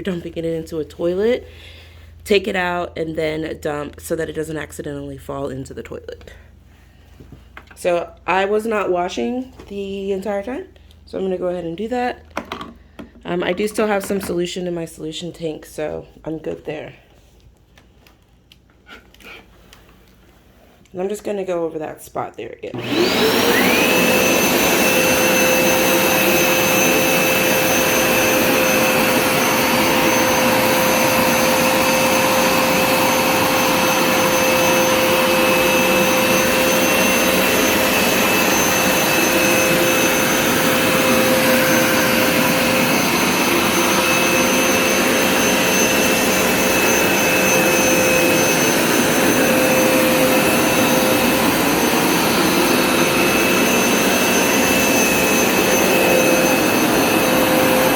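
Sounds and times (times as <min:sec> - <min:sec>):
carpet cleaner motor whining: 0:22.7 - 0:57.9.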